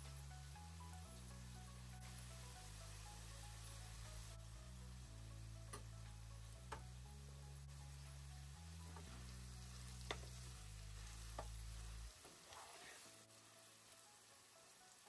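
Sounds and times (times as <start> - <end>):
potatoes frying in oil: 0.0 - 15.0
spatula tapping pan: 10.0 - 10.4, 11.3 - 11.6
wooden spatula stirring: 11.0 - 13.0.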